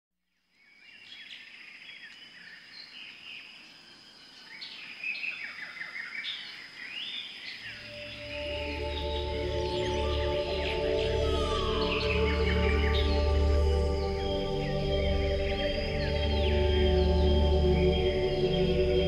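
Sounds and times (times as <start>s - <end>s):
birds chirping and calling: 4.6s - 19.0s
music with low sustained tones: 7.7s - 19.0s.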